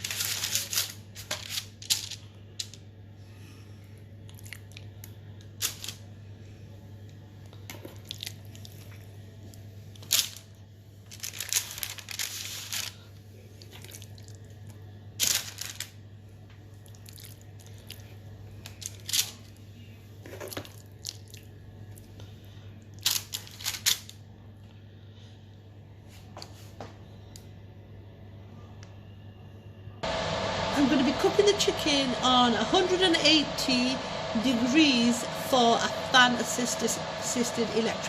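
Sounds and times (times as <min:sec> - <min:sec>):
steady low hum: 0:00.0 - 0:11.2, 0:24.2 - 0:38.0.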